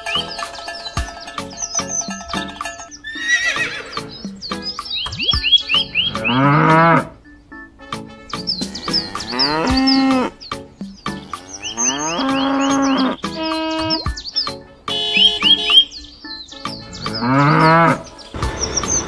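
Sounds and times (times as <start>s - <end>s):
high chirping: 0.0s - 19.0s
cow mooing: 5.8s - 7.2s, 8.6s - 10.4s, 11.1s - 14.0s, 17.0s - 18.1s.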